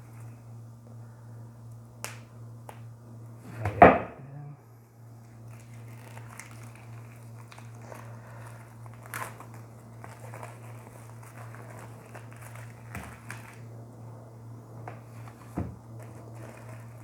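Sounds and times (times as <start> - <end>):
plastic shrink-wrap crackling: 5.3 - 13.9, 15.1 - 17.0.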